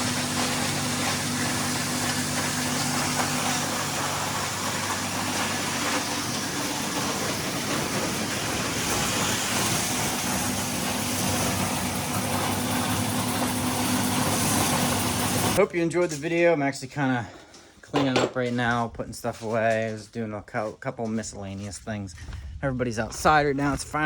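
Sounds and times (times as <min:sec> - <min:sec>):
feed grinder hissing: 0:00.0 - 0:15.6
tractor engine hum: 0:00.0 - 0:15.6.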